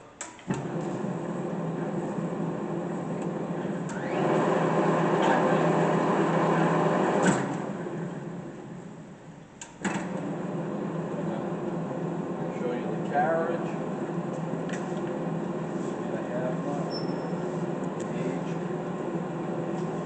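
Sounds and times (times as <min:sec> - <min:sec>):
lathe spindle running: 0:00.6 - 0:09.3, 0:09.9 - 0:20.0.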